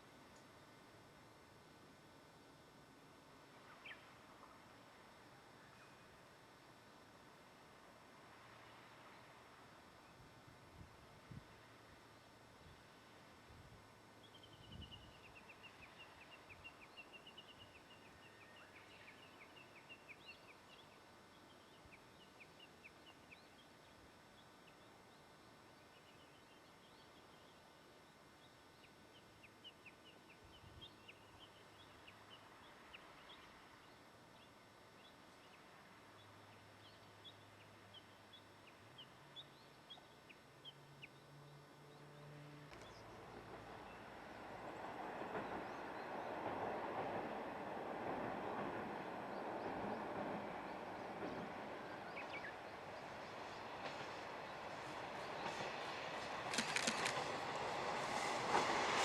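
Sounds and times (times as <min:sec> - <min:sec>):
diesel train rumbling: 0:43.1 - 0:59.0.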